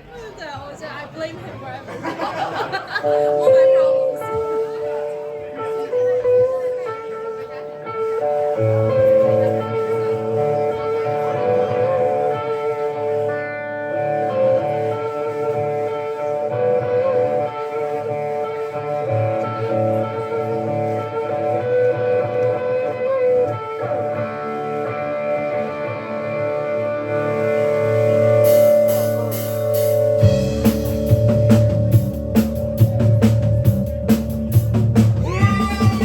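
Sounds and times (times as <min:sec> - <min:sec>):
bass guitar: 0:03.1 - 0:36.0
electric guitar riff: 0:03.1 - 0:36.0.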